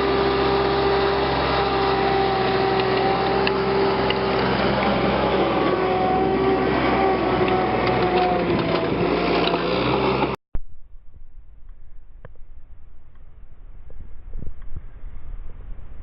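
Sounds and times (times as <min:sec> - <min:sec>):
power wire brush scouring steel: 0:00.0 - 0:10.4.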